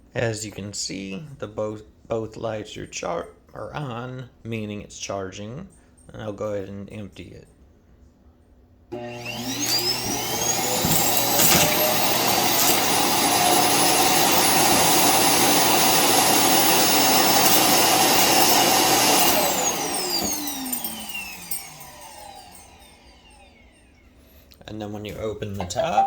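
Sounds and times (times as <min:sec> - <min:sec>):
vacuum motor whining: 0:08.9 - 0:24.1.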